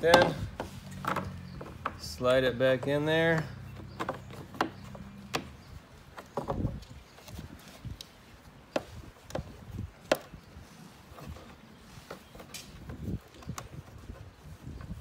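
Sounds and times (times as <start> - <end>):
dull thumps: 0.0 - 6.8.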